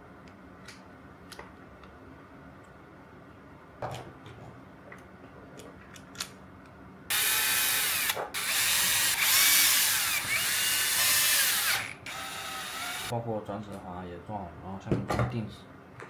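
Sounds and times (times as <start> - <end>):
power drill motor whining: 7.1 - 13.1.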